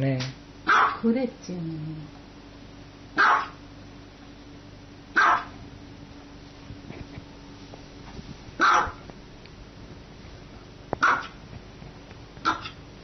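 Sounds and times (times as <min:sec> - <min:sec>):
small dog barking: 0:00.6 - 0:01.0, 0:03.2 - 0:03.6, 0:05.1 - 0:05.6, 0:08.6 - 0:09.1, 0:11.0 - 0:11.4, 0:12.4 - 0:12.8.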